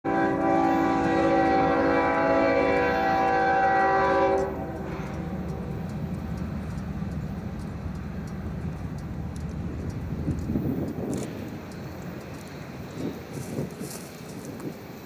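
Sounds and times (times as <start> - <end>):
locomotive air horn chord: 0.0 - 5.5
freight train rumble: 0.1 - 15.0.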